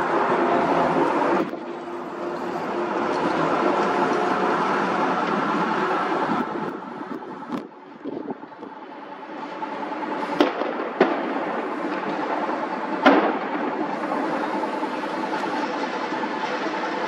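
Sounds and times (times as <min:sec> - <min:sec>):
train rumbling past: 0:00.0 - 0:17.0
firecracker bangs: 0:10.3 - 0:14.6.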